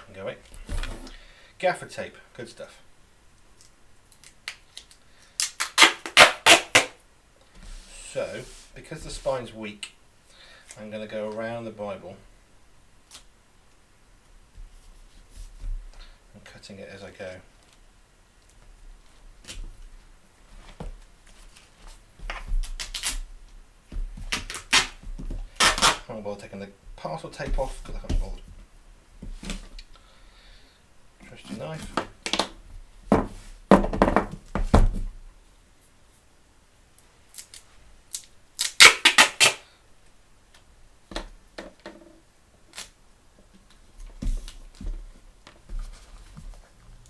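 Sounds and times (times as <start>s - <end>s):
tape ripping off roll: 0.5s - 1.2s, 4.2s - 7.0s, 21.5s - 23.3s, 23.9s - 26.1s, 37.3s - 39.7s.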